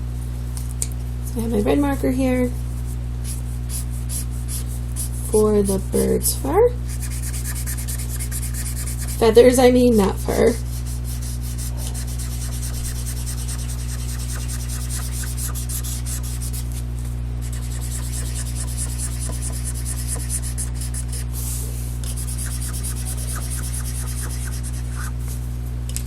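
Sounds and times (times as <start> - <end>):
low electrical hum: 0.0 - 26.0
marker scribbling on paper: 3.2 - 6.0, 6.9 - 9.3, 10.0 - 16.8, 17.4 - 21.3, 22.0 - 25.2.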